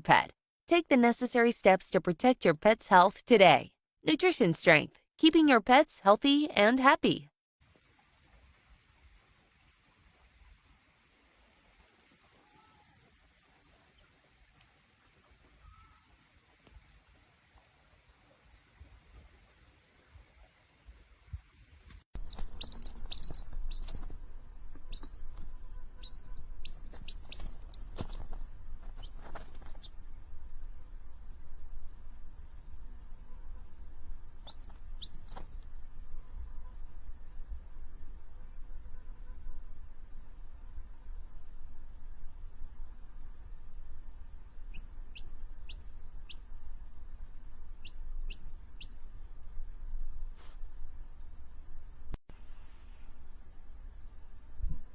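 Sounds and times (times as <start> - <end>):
small bird chirping: 22.2 - 30.0, 34.4 - 35.6, 44.6 - 46.6, 47.7 - 49.2
steady low rumble: 29.9 - 54.9.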